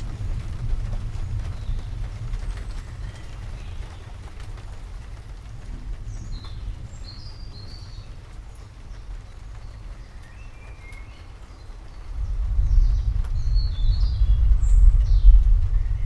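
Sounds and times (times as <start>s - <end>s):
distant thunder rumble: 0.0s - 16.0s
rain hissing: 0.0s - 16.0s.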